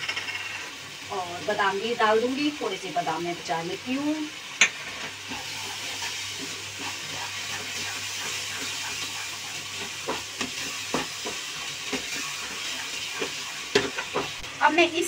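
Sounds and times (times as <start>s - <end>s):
halwa sizzling in a pan: 0.0s - 15.0s
wooden spatula stirring: 5.3s - 14.4s.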